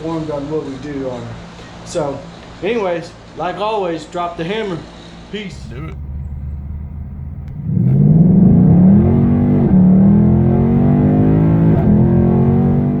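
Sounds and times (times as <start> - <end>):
car engine accelerating: 5.5 - 13.0.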